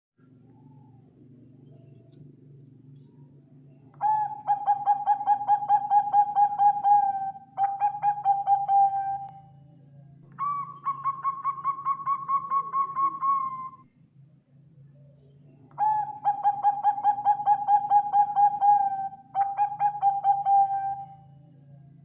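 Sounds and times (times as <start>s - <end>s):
faint low hum: 0.2s - 22.0s
dove cooing: 3.9s - 9.6s, 10.3s - 13.8s, 15.7s - 21.4s.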